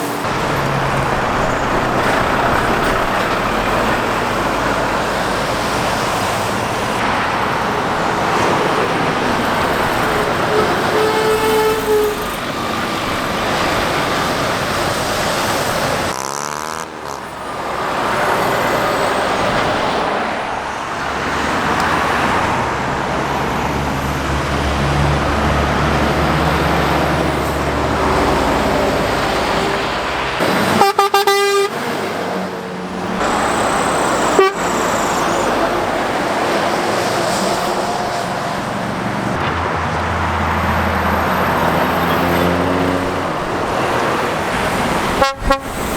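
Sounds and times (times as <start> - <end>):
heavy road traffic passing: 0.0 - 45.9
vehicle horn toots: 9.8 - 12.6, 29.6 - 32.0, 33.2 - 35.9, 45.1 - 45.9.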